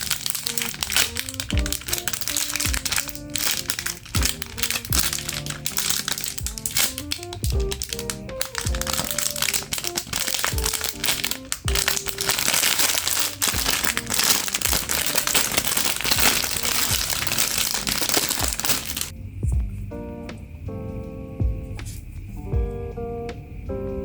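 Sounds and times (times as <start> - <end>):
packaging crinkling: 0.0 - 19.1
background music with beat: 0.0 - 24.0.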